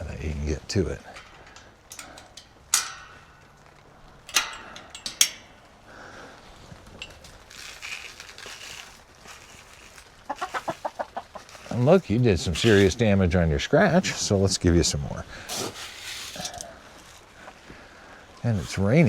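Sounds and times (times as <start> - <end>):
chicken feeder clanking: 0.0 - 6.3, 10.3 - 13.0
soft rustling: 0.0 - 19.0.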